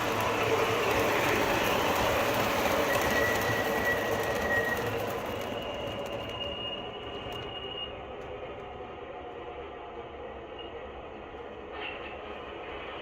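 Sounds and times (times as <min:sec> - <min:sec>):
subway train rumbling on rails: 0:00.0 - 0:13.0
high wheel squeal: 0:02.0 - 0:08.2.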